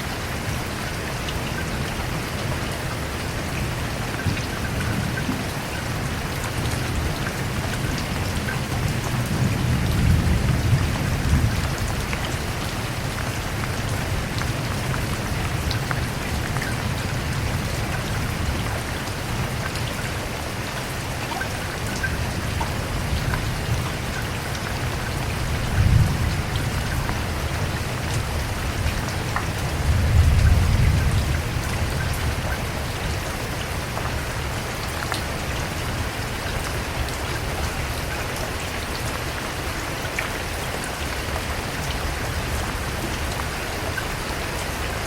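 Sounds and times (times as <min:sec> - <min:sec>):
rain falling: 0:00.0 - 0:45.0
raindrop ticks: 0:03.5 - 0:20.1, 0:21.2 - 0:34.2.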